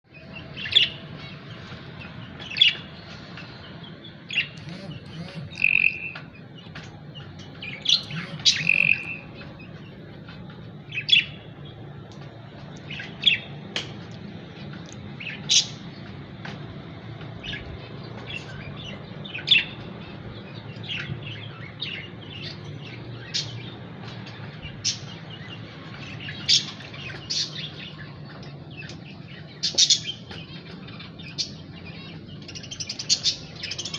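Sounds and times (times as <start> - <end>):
lovebirds chirping: 0.1 - 13.6
low steady hum: 4.3 - 22.0
bird whistles: 5.4 - 6.2, 7.9 - 9.3.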